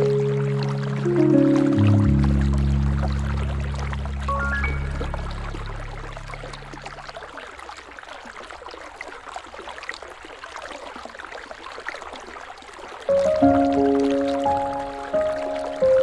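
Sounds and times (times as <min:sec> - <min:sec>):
soft music with held notes: 0:00.0 - 0:07.0, 0:13.1 - 0:16.0
river water babbling: 0:00.0 - 0:16.0
small water splashes: 0:00.0 - 0:16.0.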